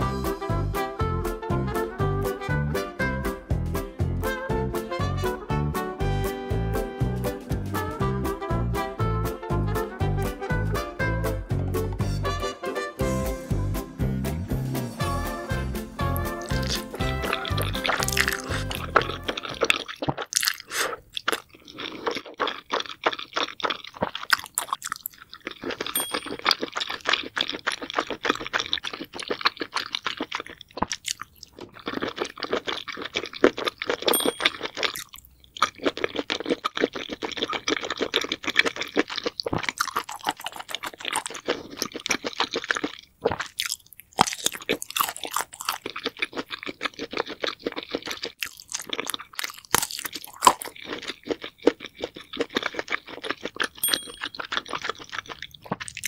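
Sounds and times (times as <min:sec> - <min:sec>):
wet chewing and crunching: 0:16.1 - 0:56.0
mouth smacks: 0:16.2 - 0:22.6.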